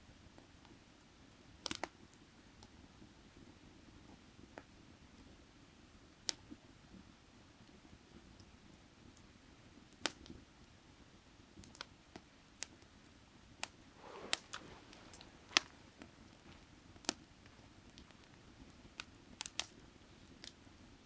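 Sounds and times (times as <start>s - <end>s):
soft hiss: 13.6s - 21.0s
faint low rumble: 13.9s - 18.4s
firewood crackling and popping: 14.0s - 20.8s.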